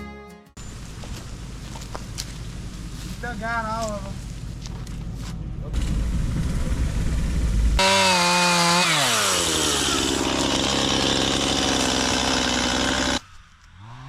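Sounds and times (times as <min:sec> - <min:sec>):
chainsaw cutting wood: 0:07.8 - 0:14.0.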